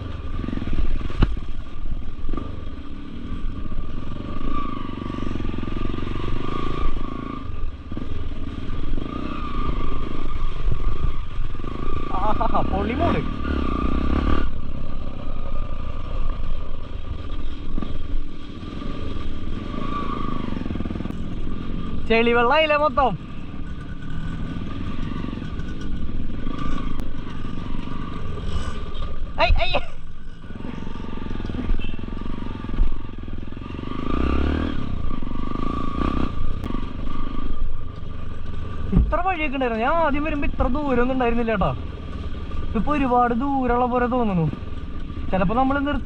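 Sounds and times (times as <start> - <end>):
motorcycle engine running: 0.0 - 46.0
motorcycle knocks on rough ground: 1.1 - 1.5, 38.9 - 39.2.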